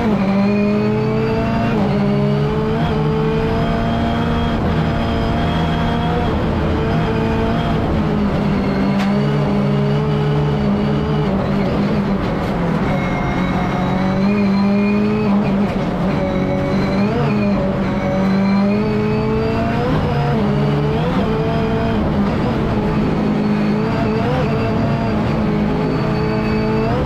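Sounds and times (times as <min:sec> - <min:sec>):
rally car engine at high revs: 0:00.0 - 0:27.0.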